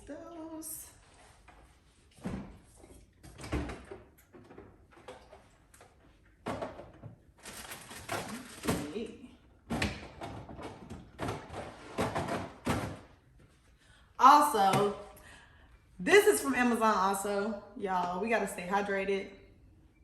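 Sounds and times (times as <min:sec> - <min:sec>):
containers clattering on shelves: 0:09.7 - 0:13.1.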